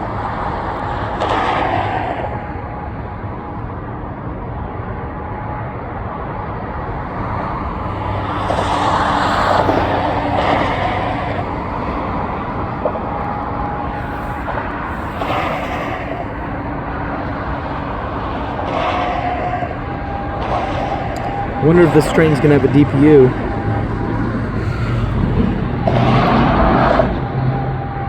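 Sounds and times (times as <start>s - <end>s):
freight train wheels rumbling on rails: 0.0s - 28.0s.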